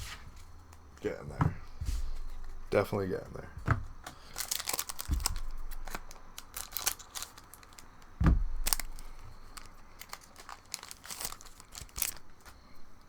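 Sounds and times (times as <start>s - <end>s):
dull thumps: 0.0s - 7.0s, 7.7s - 12.3s
foil wrapper crinkling and tearing: 4.0s - 13.0s.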